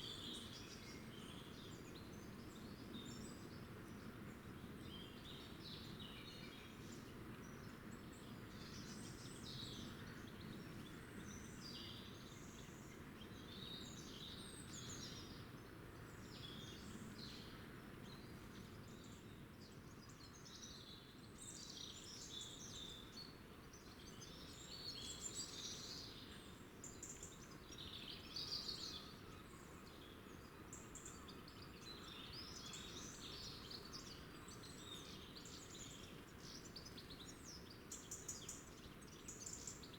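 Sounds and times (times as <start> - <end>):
low background noise: 0.0 - 39.9.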